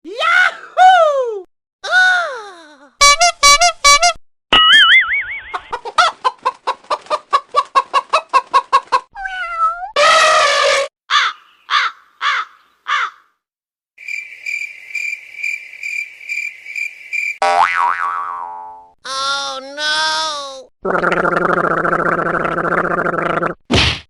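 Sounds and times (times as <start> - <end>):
clucking pulses: 5.5 - 9.1.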